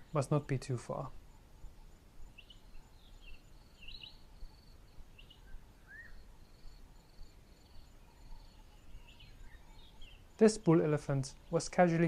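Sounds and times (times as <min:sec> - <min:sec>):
bird chirping: 0:00.0 - 0:12.0
insect trill: 0:00.0 - 0:12.0.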